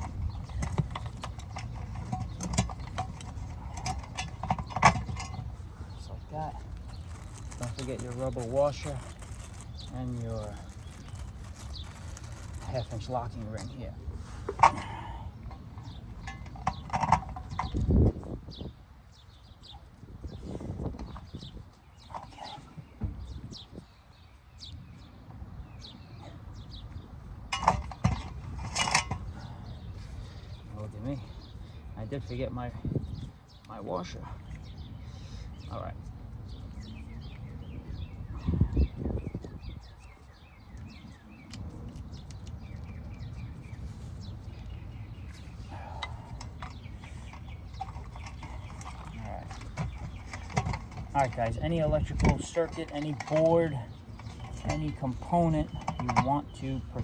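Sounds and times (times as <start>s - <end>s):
metal fittings rattling: 0.0s - 5.5s, 6.5s - 13.8s, 27.5s - 29.6s, 46.0s - 56.6s
small birds chirping: 0.0s - 57.0s.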